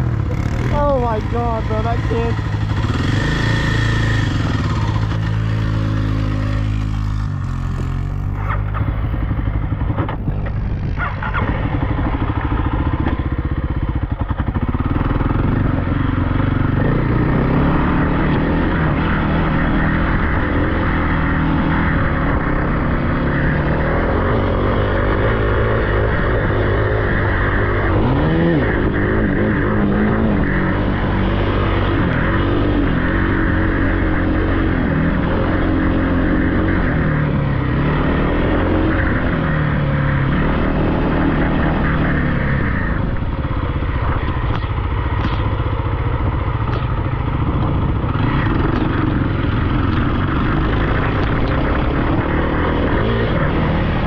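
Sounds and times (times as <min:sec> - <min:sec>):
off-road vehicle engine running: 0:00.0 - 0:54.0.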